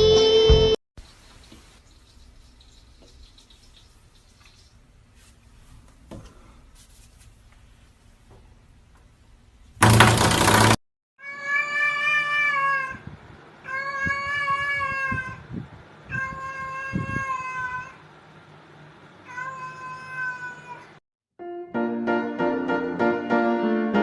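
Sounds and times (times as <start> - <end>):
loud burst of noise: 9.8 - 10.8
cat meowing: 11.2 - 13.0, 13.6 - 15.4, 16.1 - 18.0, 19.2 - 21.0.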